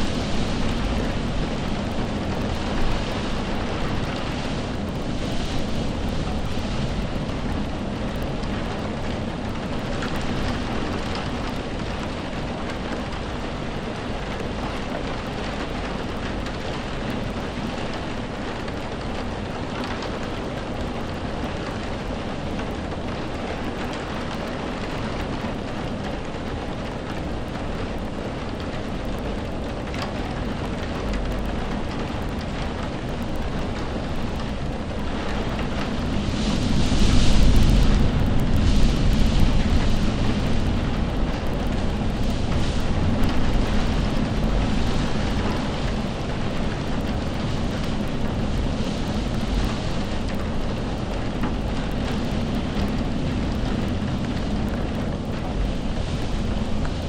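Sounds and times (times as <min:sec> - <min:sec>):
low rumble: 0:00.0 - 0:12.8, 0:30.6 - 0:57.0
steady rainfall: 0:00.0 - 0:57.0.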